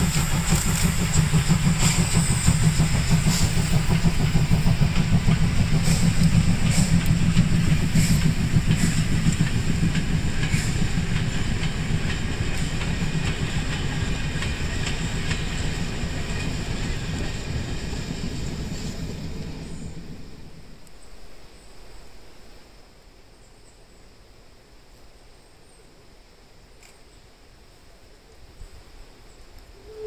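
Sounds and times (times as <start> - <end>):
train rumbling past: 0.0 - 22.7.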